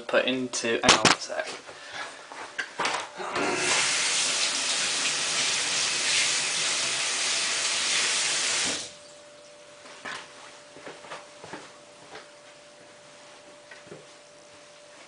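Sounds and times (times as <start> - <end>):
faint steady hum: 0.0 - 15.0
water rushing into washing machine: 3.4 - 9.0.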